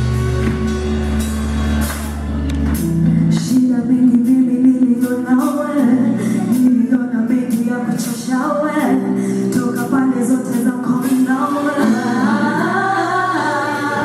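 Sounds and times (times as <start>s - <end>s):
voices singing over chords: 10.2s - 14.0s.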